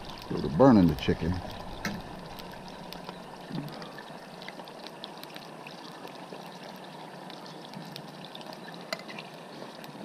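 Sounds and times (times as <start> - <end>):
chicken sizzling in a frying pan: 0.0 - 3.4.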